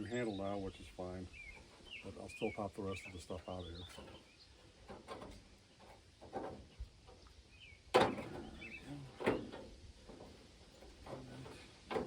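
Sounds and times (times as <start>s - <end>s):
metal knocks and clunks: 3.9s - 7.2s, 7.9s - 12.0s
faint bird chirps: 7.2s - 9.2s.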